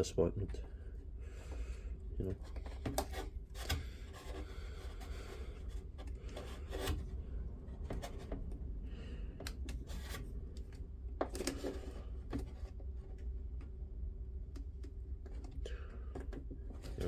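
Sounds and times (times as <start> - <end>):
steady low hum: 0.0 - 17.0
plastic and metal scraping: 2.2 - 8.6, 15.2 - 17.0.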